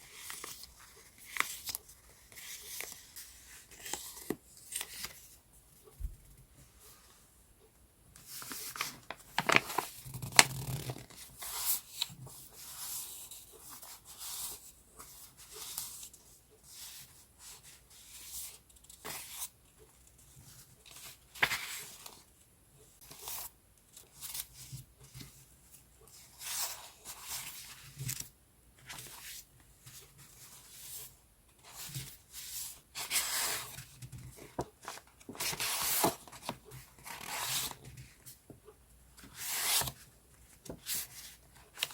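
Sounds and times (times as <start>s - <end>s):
paper rustling and crinkling: 0.0s - 5.4s, 8.2s - 16.0s, 20.9s - 22.2s, 39.2s - 41.9s.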